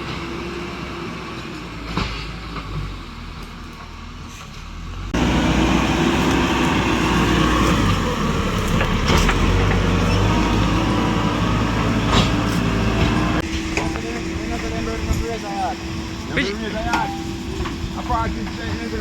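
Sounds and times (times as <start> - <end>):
heavy machine engine running: 4.8 - 19.0.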